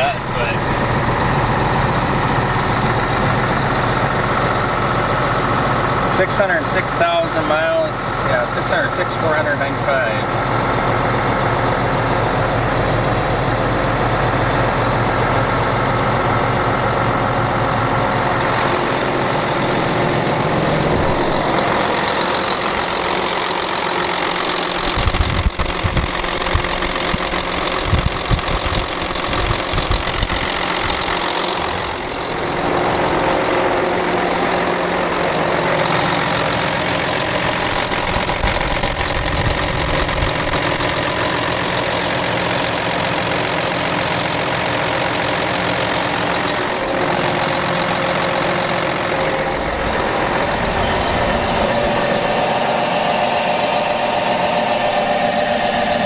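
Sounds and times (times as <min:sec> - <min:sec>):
diesel truck idling: 0:00.0 - 0:56.0.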